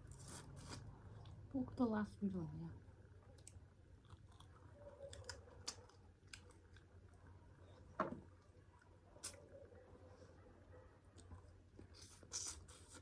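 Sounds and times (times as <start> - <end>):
soft chewing and food clicks: 0.0 - 1.5, 3.1 - 9.6, 11.0 - 13.0.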